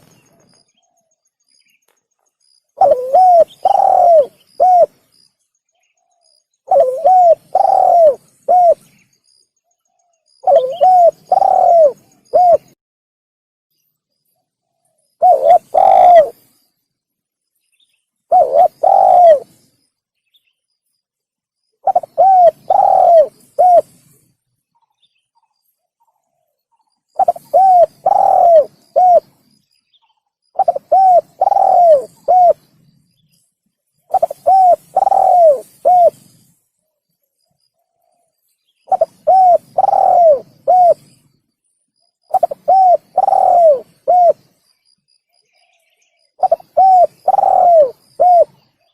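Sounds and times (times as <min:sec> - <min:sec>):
dove cooing: 0:02.8 - 0:05.0, 0:06.6 - 0:08.9, 0:10.4 - 0:12.8, 0:15.2 - 0:16.4, 0:18.3 - 0:19.6, 0:21.8 - 0:24.2, 0:27.2 - 0:29.4, 0:30.6 - 0:32.7, 0:34.1 - 0:36.5, 0:38.9 - 0:41.1, 0:42.3 - 0:44.4, 0:46.4 - 0:48.6.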